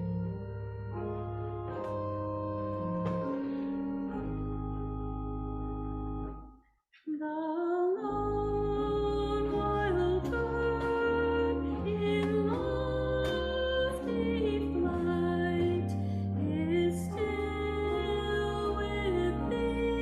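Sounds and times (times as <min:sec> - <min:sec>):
instrumental accompaniment: 0:00.0 - 0:06.6, 0:08.2 - 0:20.0
choir singing a hymn: 0:09.2 - 0:20.0.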